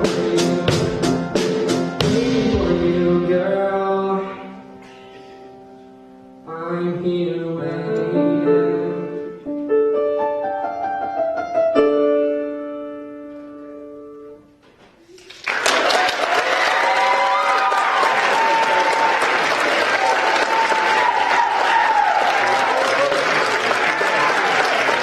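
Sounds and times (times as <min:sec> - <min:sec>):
piano playing slow chords: 0:00.0 - 0:14.6
applause: 0:15.2 - 0:25.0.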